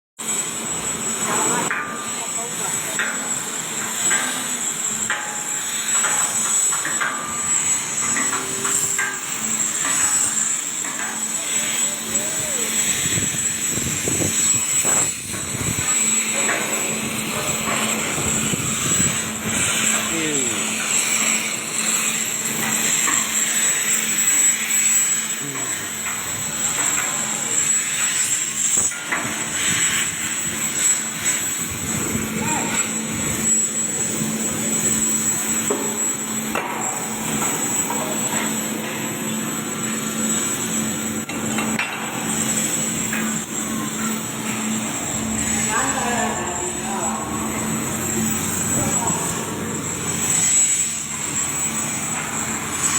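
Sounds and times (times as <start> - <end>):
busy work noise: 0.2 - 52.9
machine drone: 0.2 - 52.9
steady low hum: 42.1 - 52.9.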